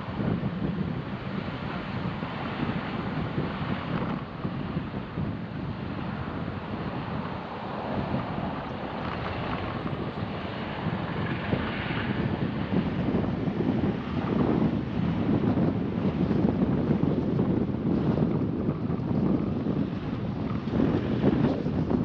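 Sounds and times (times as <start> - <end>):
road noise: 0.0 - 22.0
wind noise: 0.0 - 22.0.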